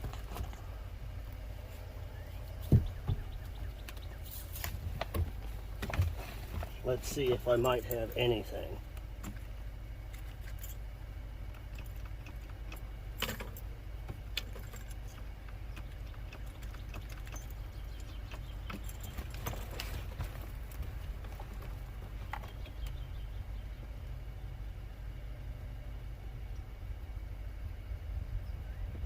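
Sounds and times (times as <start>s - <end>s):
steady low rumble: 0.0s - 29.0s
light clicks and rattles: 2.5s - 23.3s.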